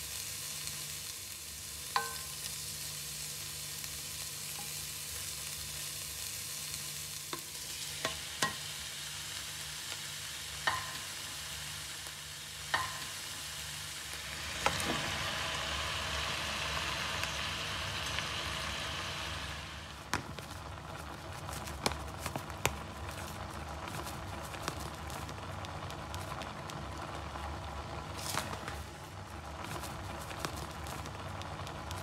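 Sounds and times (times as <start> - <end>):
food sizzling in a hot pan: 0.0 - 32.0
utensil clicking on a pan: 1.9 - 2.5, 10.6 - 11.2, 12.6 - 13.2.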